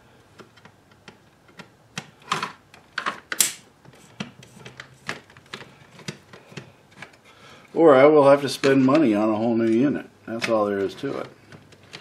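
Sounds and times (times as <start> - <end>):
sharp scraping plastic snap: 3.3 - 7.2.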